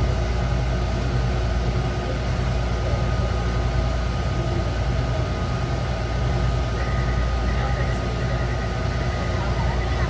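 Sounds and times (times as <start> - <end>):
metro train rumble: 0.0 - 10.0
high thin whine: 2.8 - 10.0.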